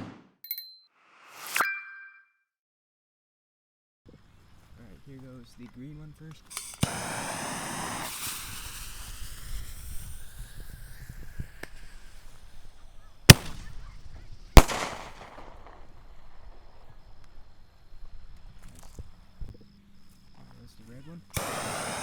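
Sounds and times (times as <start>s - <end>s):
firework launch report: 4.2s - 22.0s
fuse hissing: 5.2s - 17.8s, 21.3s - 22.0s
firework shell bang with echo: 13.3s - 13.8s, 14.6s - 15.9s.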